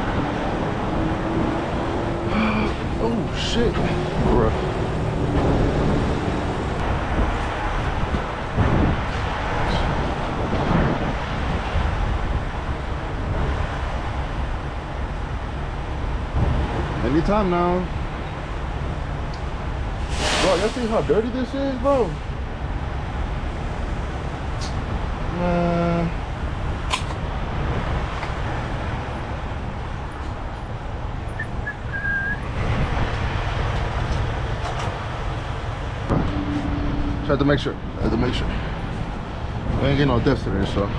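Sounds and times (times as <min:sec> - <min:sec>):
wind blowing on microphone: 0:00.0 - 0:14.6, 0:20.0 - 0:22.3, 0:31.4 - 0:37.2
steady low rumble: 0:00.0 - 0:40.9
short pitched blare: 0:20.0 - 0:21.3.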